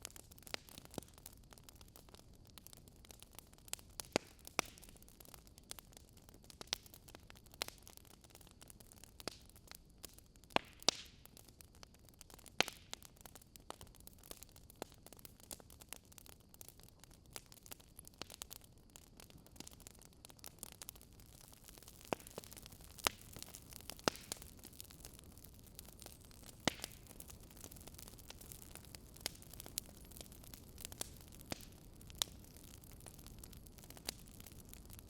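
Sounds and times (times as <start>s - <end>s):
faint steady hiss: 0.0s - 35.0s
wood fire crackling: 0.0s - 35.0s.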